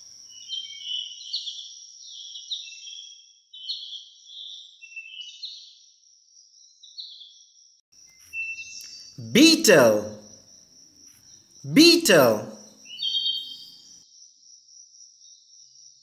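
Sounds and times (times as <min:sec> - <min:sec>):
small birds chirping: 0:12.8 - 0:13.8.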